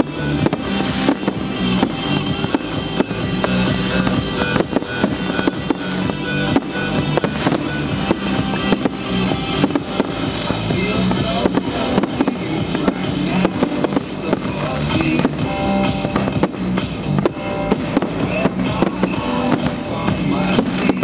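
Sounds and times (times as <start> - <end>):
fireworks banging: 0.0 - 21.0
loud music: 0.0 - 21.0.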